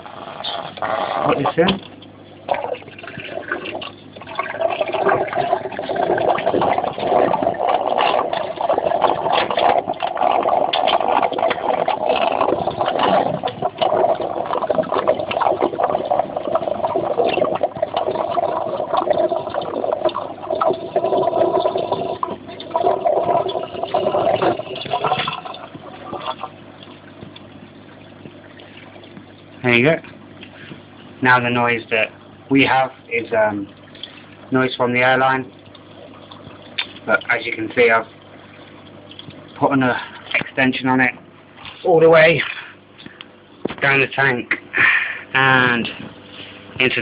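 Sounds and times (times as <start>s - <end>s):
water rushing and gurgling down a pipe: 0.0s - 43.2s
small water splashes: 0.5s - 44.7s.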